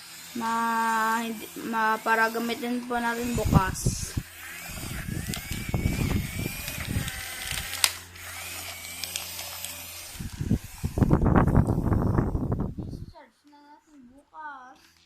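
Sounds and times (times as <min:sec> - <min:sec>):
toy electric motors whirring: 0:00.0 - 0:13.1, 0:14.7 - 0:15.0.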